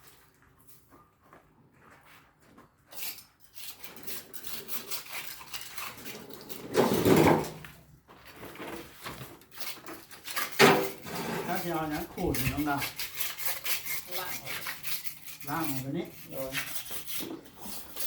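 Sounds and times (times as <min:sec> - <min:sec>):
metal tool scraping: 0:02.9 - 0:07.6, 0:09.5 - 0:18.0.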